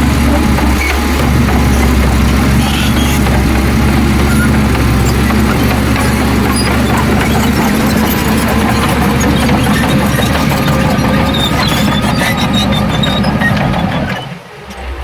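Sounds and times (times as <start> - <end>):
heavy diesel engine running: 0.0 - 15.0
faint thin squeal: 2.6 - 3.2.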